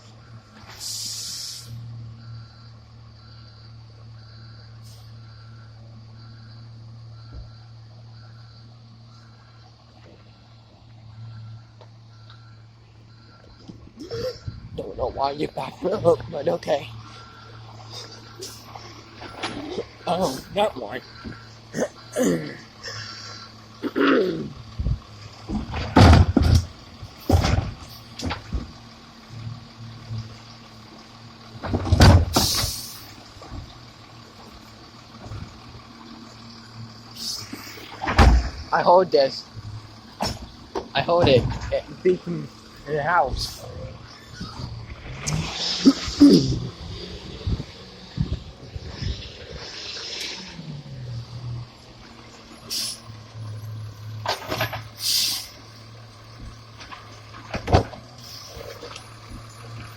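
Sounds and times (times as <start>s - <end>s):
truck engine idling: 0.0s - 59.9s
short hiss of air: 0.7s - 1.8s, 32.4s - 33.1s, 52.7s - 53.0s, 55.0s - 55.6s
loud clunk: 25.5s - 28.7s, 31.6s - 32.8s, 38.0s - 38.6s, 40.2s - 41.7s.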